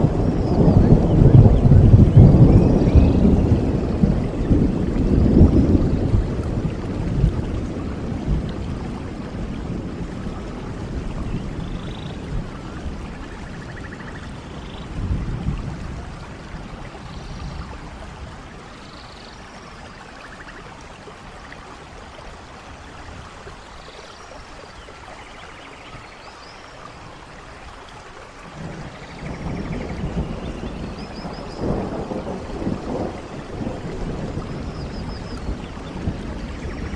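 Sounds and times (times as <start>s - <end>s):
low thunder rumbling: 0.0s - 18.9s, 28.5s - 36.9s
rain falling: 0.0s - 36.9s.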